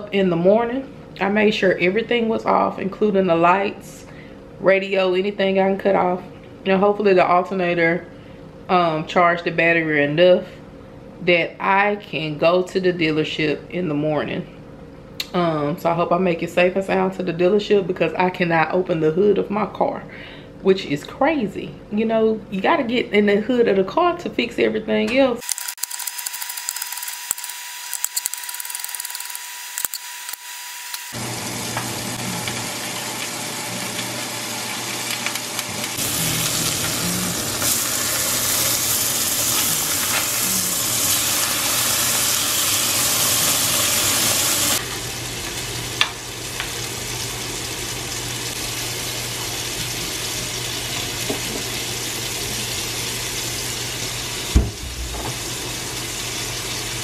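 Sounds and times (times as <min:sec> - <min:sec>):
food sizzling in a pan: 0:25.6 - 0:57.0
thump: 0:54.5 - 0:55.4
low hum: 0:54.6 - 0:56.0.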